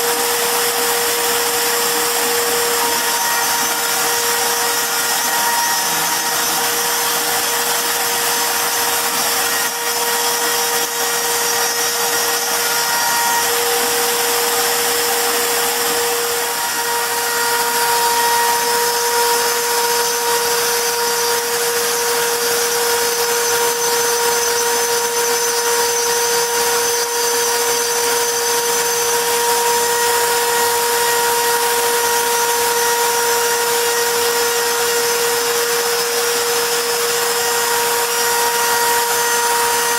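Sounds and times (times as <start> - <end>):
cutter engraving wood: 0.0 - 39.9
router spindle whine: 0.0 - 39.9.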